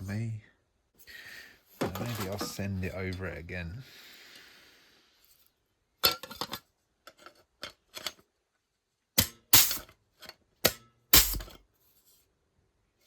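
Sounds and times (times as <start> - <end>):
pneumatic tool clacking on metal: 9.2 - 9.9, 10.7 - 11.6.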